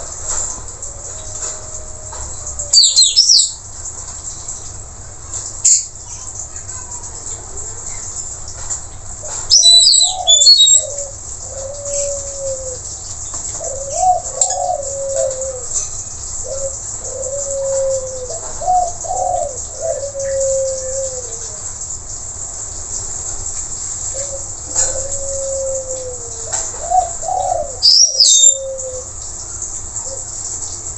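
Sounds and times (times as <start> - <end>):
steady high hiss: 0.0 - 30.9
dove cooing: 9.2 - 21.8, 24.1 - 29.3.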